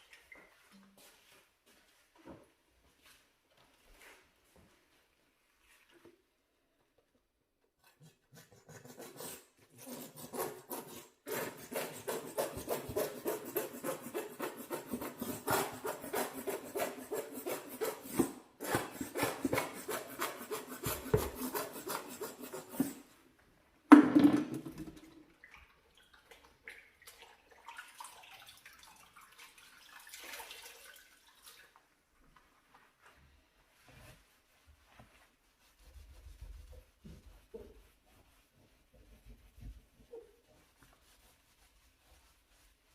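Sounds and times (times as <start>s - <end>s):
brush scrubbing kitchen range: 7.7s - 23.2s, 32.4s - 42.9s
faint rubbing: 32.8s - 42.9s.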